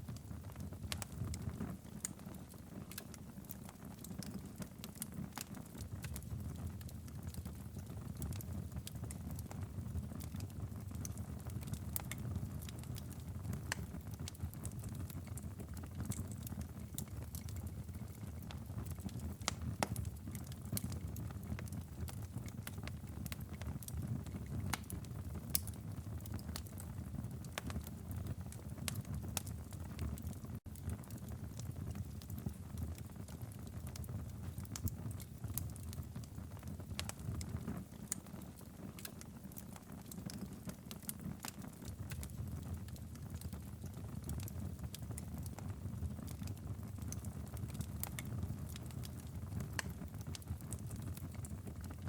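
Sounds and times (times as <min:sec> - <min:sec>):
fireplace crackling: 0:00.1 - 0:52.0.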